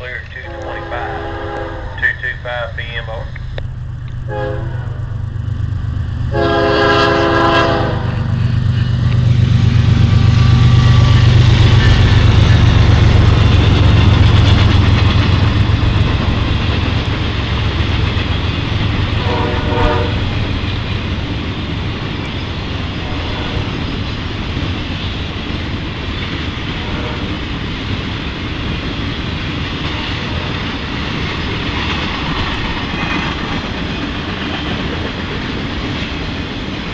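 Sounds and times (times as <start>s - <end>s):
train horn blast: 0.0s - 2.6s, 4.2s - 5.2s, 6.3s - 8.4s, 19.1s - 20.6s, 22.9s - 24.0s, 26.7s - 27.4s
diesel locomotive rumble: 0.0s - 36.9s
rail cars rolling by: 0.0s - 36.9s.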